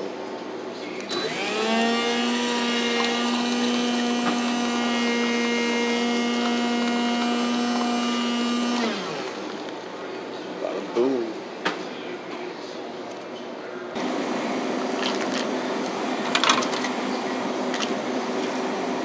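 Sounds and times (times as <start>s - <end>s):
small electric motor whining: 1.1s - 9.5s.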